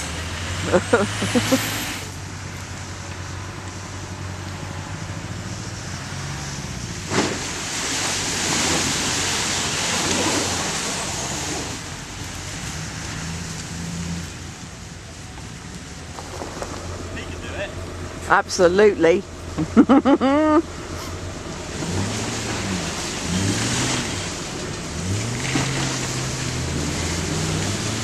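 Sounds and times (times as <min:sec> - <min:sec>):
engine running at low revs: 0:00.0 - 0:28.0
rushing noise: 0:04.5 - 0:19.6.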